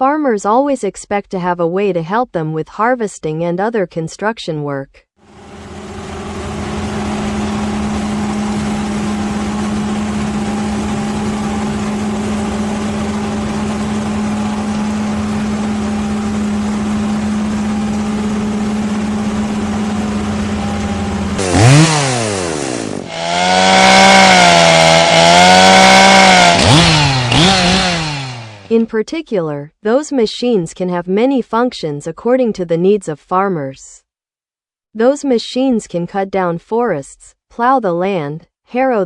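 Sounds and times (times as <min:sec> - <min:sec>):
chainsaw engine running: 0:05.2 - 0:28.8.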